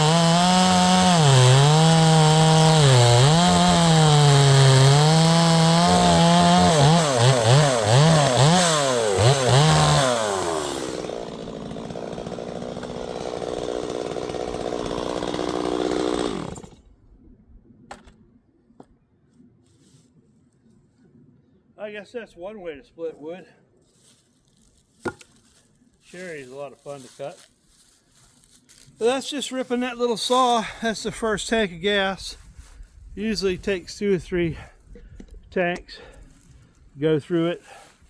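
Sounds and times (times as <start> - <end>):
chainsaw cutting wood: 0.0 - 16.8.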